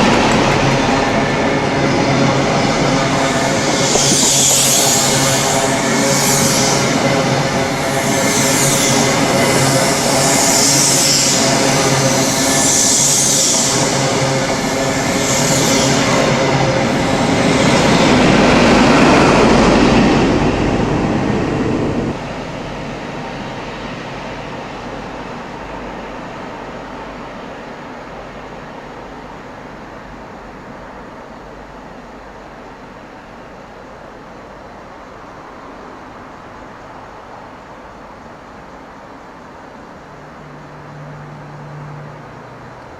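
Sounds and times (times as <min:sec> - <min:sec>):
diesel train engine: 0:00.0 - 0:42.9
rushing wheel and rail noise: 0:00.0 - 0:42.9
pulsing high hiss: 0:00.1 - 0:22.2.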